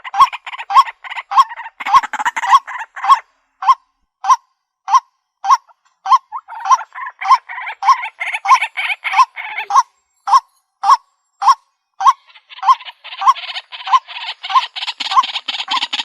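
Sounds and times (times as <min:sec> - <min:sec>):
harsh bird chatter: 0:00.0 - 0:03.2, 0:06.3 - 0:10.4, 0:11.9 - 0:16.0
bird calling sharp notes: 0:04.2 - 0:16.0.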